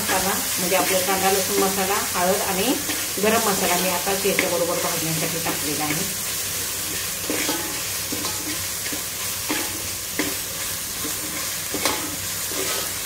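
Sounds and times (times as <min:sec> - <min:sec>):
paste sizzling in oil: 0:00.0 - 0:13.0.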